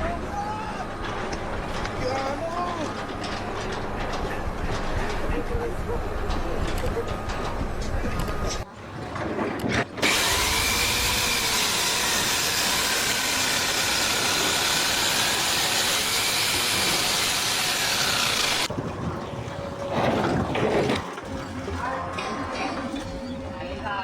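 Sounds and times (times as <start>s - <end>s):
hissing machine noise: 10.0s - 18.7s.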